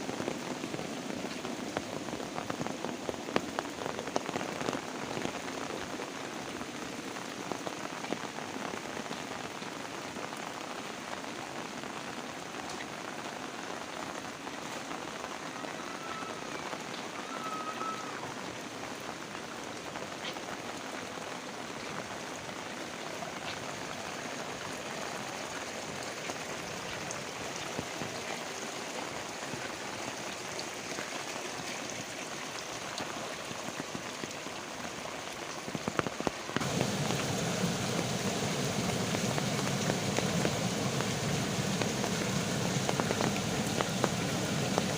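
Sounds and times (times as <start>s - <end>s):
heavy rain hissing: 0.0s - 44.9s
rain drop taps: 35.7s - 44.9s.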